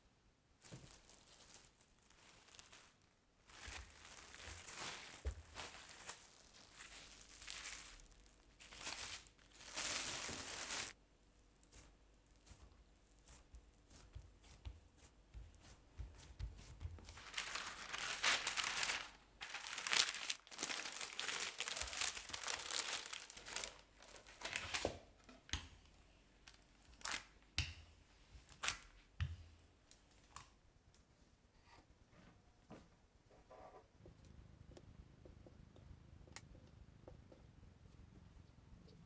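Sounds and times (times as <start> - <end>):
paper or wrap crinkling: 0.6 - 11.0, 16.8 - 25.1, 26.4 - 27.3.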